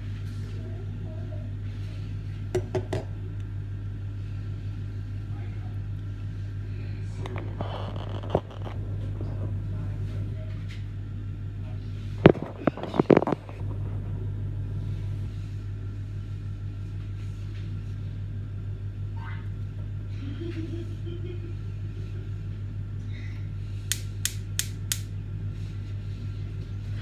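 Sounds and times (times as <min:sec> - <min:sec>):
steady low hum: 0:08.4 - 0:26.8
sharp clicks: 0:23.9 - 0:25.1.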